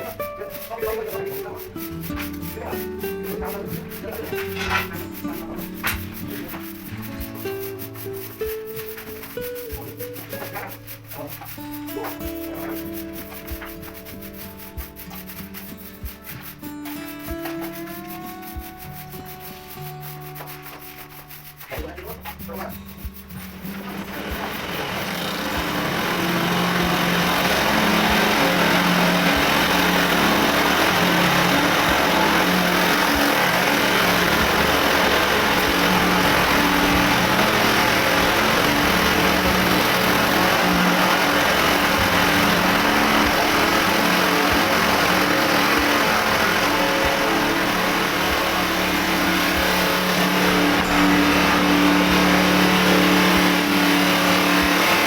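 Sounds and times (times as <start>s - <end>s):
small engine running fast: 0.0s - 55.0s.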